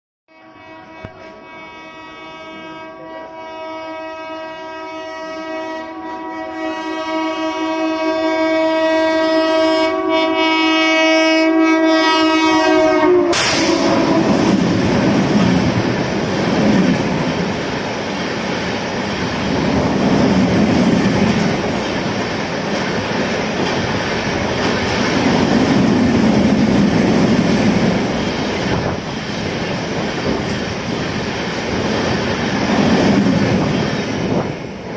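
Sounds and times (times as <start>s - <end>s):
locomotive horn blast: 0.3s - 14.5s
train rushing past: 12.5s - 34.9s.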